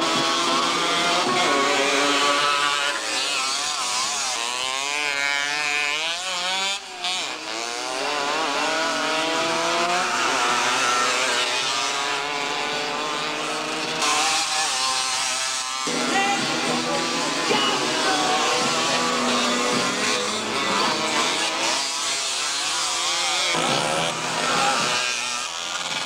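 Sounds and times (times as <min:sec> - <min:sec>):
motocross engines revving: 0:00.0 - 0:26.0.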